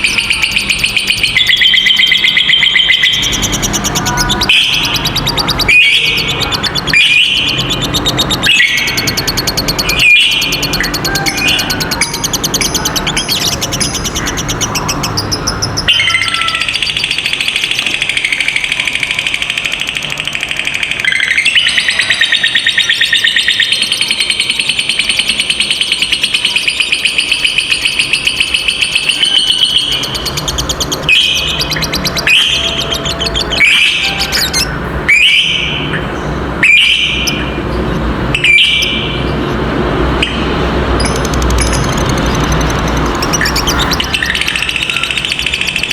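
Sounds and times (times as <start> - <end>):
bird chattering trill: 0.0 - 45.9.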